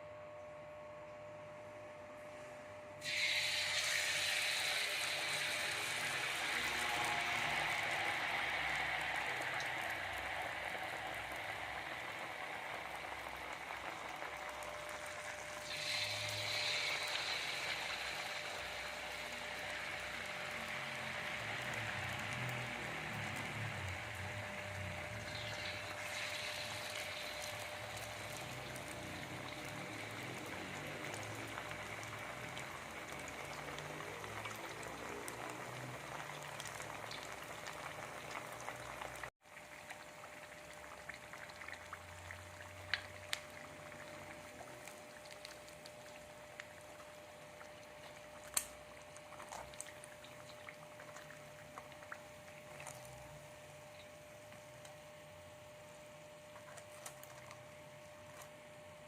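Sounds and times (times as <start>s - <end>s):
faint steady hum: 0.0s - 59.0s
liquid bubbling in a pot: 3.0s - 59.0s
small pops and crackles: 40.9s - 53.2s.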